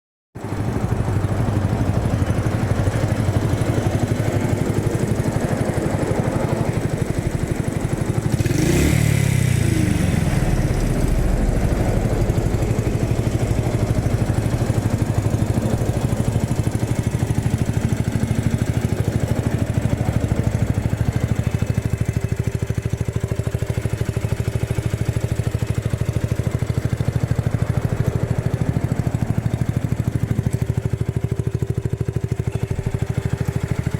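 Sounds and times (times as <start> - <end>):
motorcycle engine idling: 0.4 - 33.9
short engine rev: 4.1 - 16.3.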